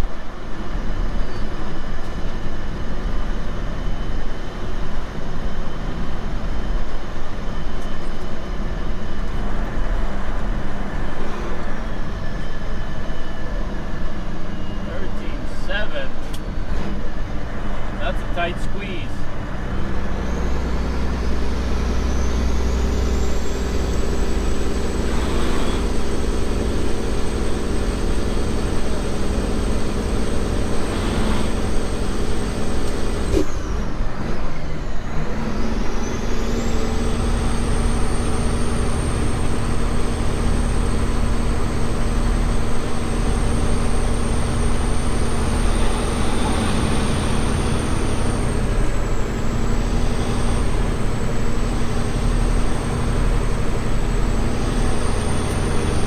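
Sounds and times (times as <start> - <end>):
truck engine drone: 0.0 - 56.0
high whine: 20.1 - 33.8, 35.4 - 56.0.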